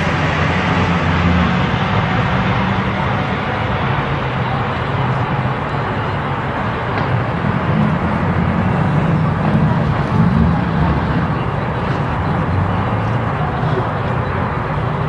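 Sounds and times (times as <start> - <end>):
car engine rumbling: 0.0 - 15.0
outdoor noise: 0.0 - 15.0.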